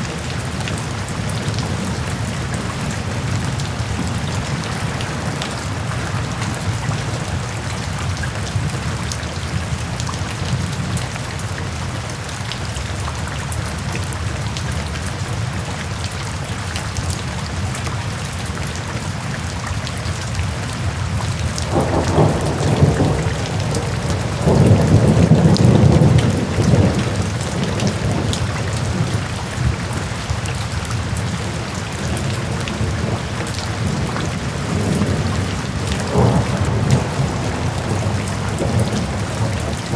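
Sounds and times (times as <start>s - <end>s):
steady rain falling: 0.0s - 39.9s
low rolling thunder: 21.4s - 29.8s, 31.0s - 39.9s.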